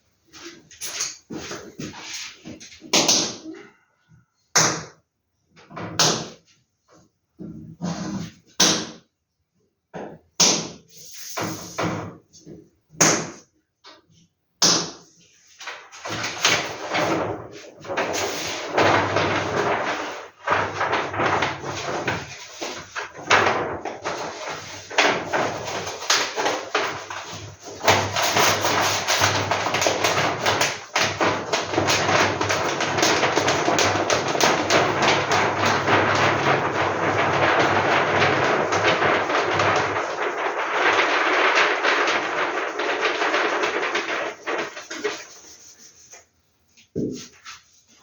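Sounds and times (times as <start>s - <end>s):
paper rustling and crinkling: 0.3s - 2.9s, 15.4s - 48.0s
sharp paper crackles and knocks: 14.6s - 47.9s.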